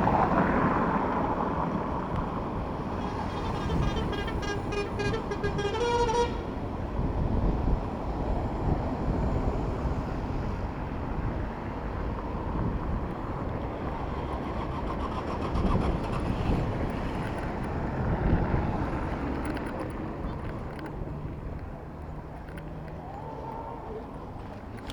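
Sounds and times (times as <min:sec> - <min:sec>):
city street traffic: 0:00.0 - 0:24.9
wind rumbling on microphone: 0:00.0 - 0:24.9
vehicle horn: 0:02.9 - 0:06.6.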